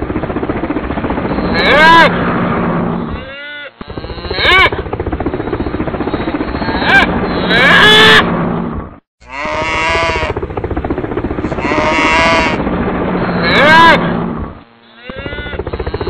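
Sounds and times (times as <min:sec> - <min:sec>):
low pulsing drone: 0:00.0 - 0:16.0
farm animals calling: 0:03.1 - 0:04.8, 0:06.5 - 0:08.3, 0:09.2 - 0:10.4, 0:11.3 - 0:12.6, 0:13.2 - 0:14.1, 0:14.7 - 0:16.0.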